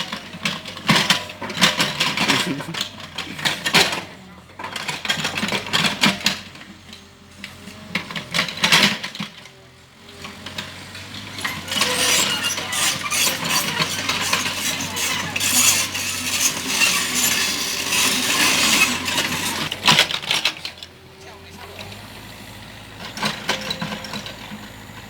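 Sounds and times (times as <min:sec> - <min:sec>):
excavator engine humming: 0:00.0 - 0:25.0
scraping and clattering: 0:00.4 - 0:06.6, 0:10.4 - 0:20.9.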